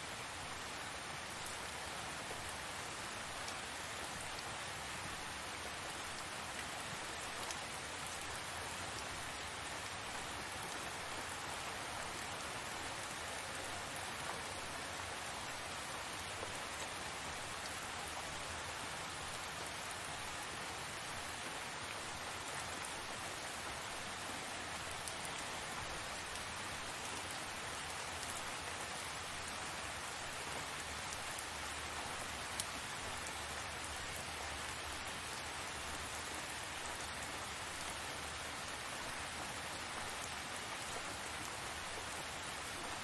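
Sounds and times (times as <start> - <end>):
rain falling steadily: 0.0 - 43.0.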